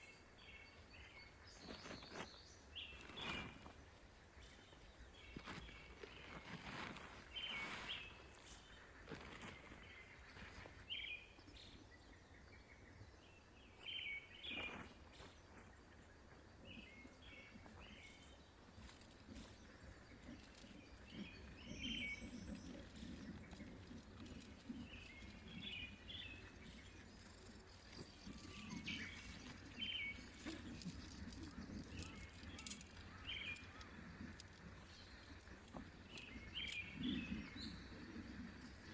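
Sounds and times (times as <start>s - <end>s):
birds chirping faintly: 0.0s - 38.9s.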